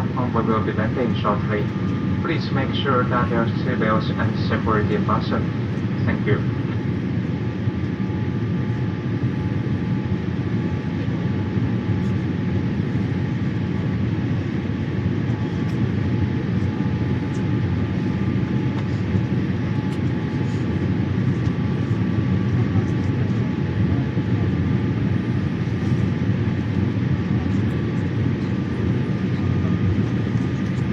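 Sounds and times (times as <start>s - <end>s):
aircraft cabin engine rumble: 0.0s - 30.9s.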